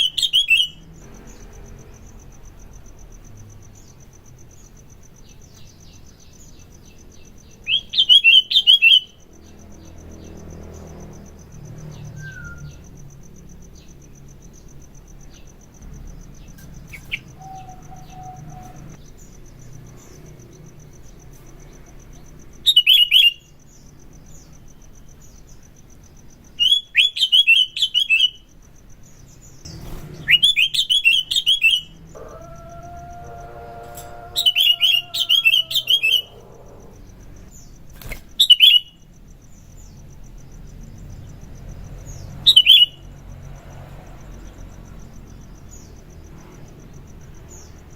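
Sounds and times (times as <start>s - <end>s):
high insect trill: 0.0s - 47.9s
bird chattering song: 5.3s - 9.6s, 16.4s - 19.3s, 29.2s - 32.7s, 34.0s - 39.0s, 42.1s - 43.0s.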